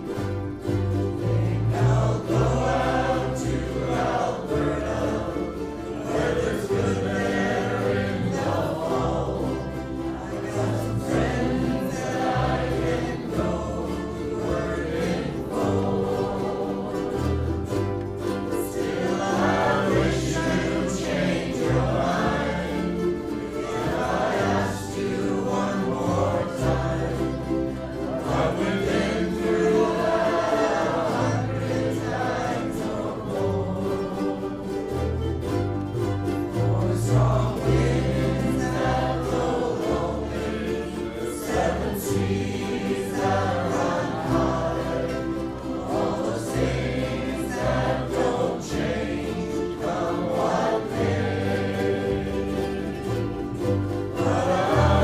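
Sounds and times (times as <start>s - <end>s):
group singing in unison: 0.0s - 55.0s
ukulele strumming: 0.0s - 55.0s.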